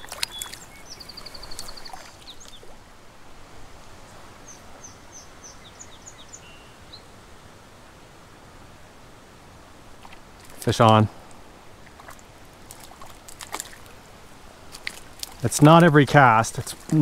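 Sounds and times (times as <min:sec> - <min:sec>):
songbird high trill: 0:00.0 - 0:02.6
faint outdoor hiss: 0:00.0 - 0:17.0
short high bird chirps: 0:00.1 - 0:02.0.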